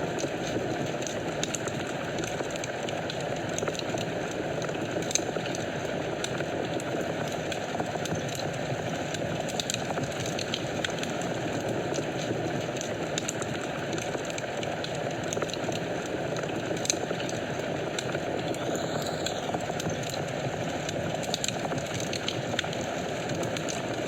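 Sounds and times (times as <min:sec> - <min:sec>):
fire crackles and pops: 0:00.0 - 0:24.0
fire flames rushing: 0:08.5 - 0:24.0.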